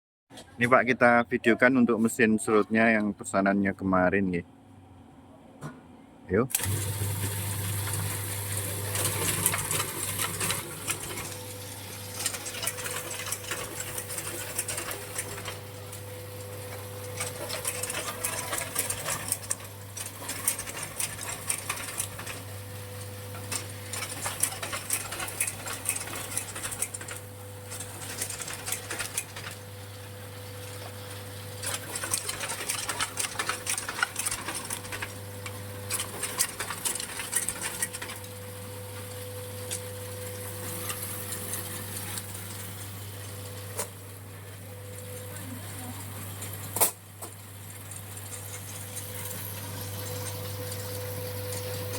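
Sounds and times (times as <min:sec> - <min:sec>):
shaving machine humming: 0:06.5 - 0:46.6
clicking and crackling: 0:16.6 - 0:29.6.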